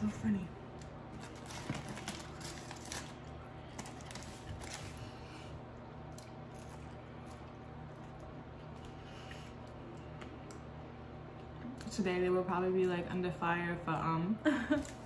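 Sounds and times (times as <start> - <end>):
steady low hum: 0.0 - 15.0
person chewing crunchy food: 1.1 - 10.6.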